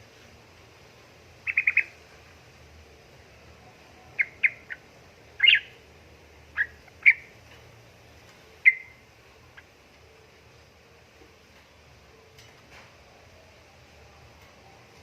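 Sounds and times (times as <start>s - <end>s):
bird calling: 1.4s - 2.0s, 4.1s - 5.8s, 6.5s - 7.3s, 8.6s - 9.0s.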